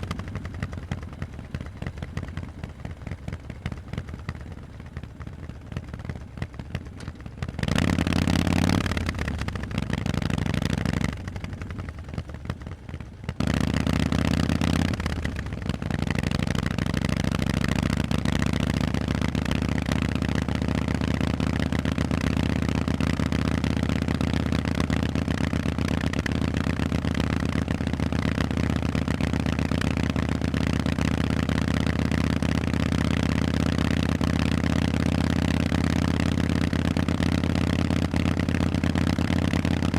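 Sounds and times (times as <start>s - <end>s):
motorcycle engine revving: 0.0s - 12.2s, 13.3s - 39.9s.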